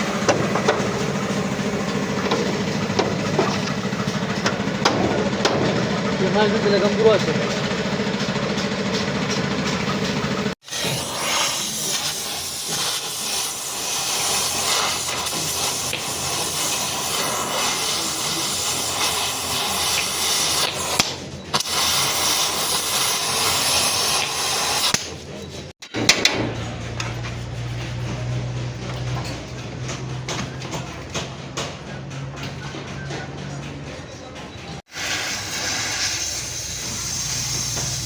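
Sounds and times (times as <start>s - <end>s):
loud steady hiss: 10.6s - 21.0s, 34.9s - 38.0s.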